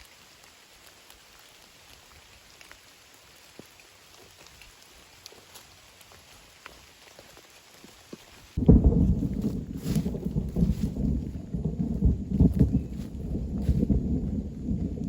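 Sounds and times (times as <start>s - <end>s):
light drizzle falling: 0.0s - 15.0s
raindrops ticking: 0.0s - 15.0s
low rumble of thunder: 8.6s - 15.0s.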